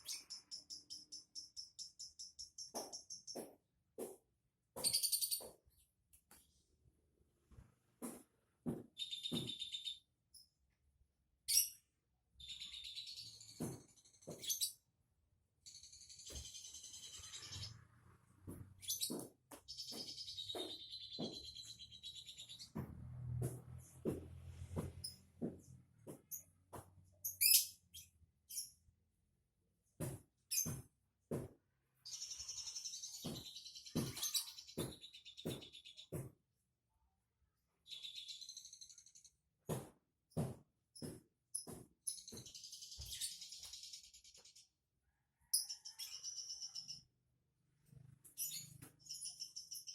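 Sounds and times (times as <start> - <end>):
songbird chirping and twittering: 0.0 - 4.2, 4.8 - 6.6, 8.7 - 10.8, 11.4 - 23.6, 27.1 - 28.8, 32.0 - 36.3, 37.6 - 39.4, 41.0 - 44.7, 45.4 - 47.2, 47.9 - 49.9.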